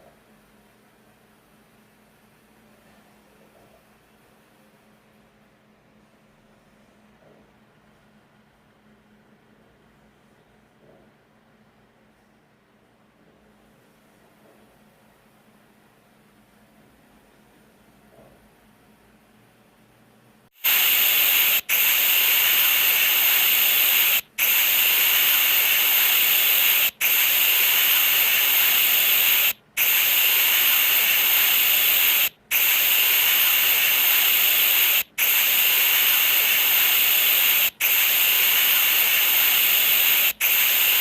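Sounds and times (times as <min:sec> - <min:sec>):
loud steady hiss: 0:20.6 - 0:41.0.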